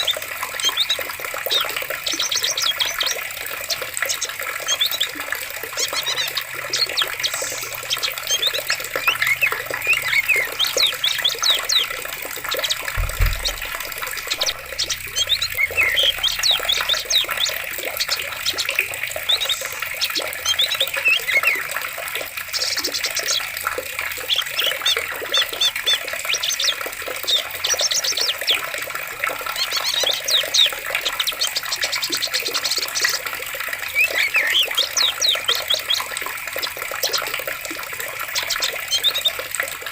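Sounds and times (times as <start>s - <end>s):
birds chirping and trilling: 0.0s - 39.5s
water rushing: 0.0s - 39.9s
low thud: 12.8s - 15.7s.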